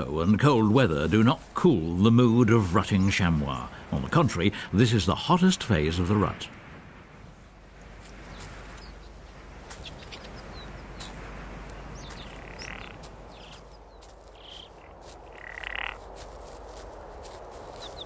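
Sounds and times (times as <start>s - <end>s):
bird chirps: 9.8s - 11.2s, 11.8s - 15.7s
buzzy animal calls: 12.2s - 13.0s, 15.3s - 16.0s.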